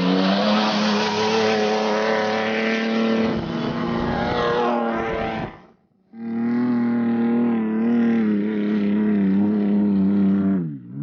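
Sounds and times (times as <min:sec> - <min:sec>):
tyre and road noise: 0:00.0 - 0:05.8
truck engine at high revs: 0:00.0 - 0:11.0.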